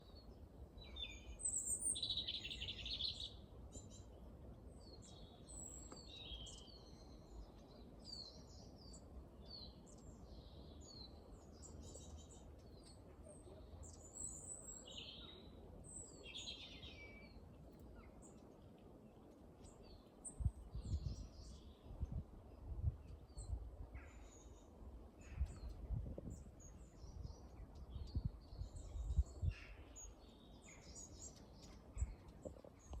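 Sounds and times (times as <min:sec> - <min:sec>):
small birds chirping and trilling: 0:00.0 - 0:22.2, 0:22.8 - 0:33.0.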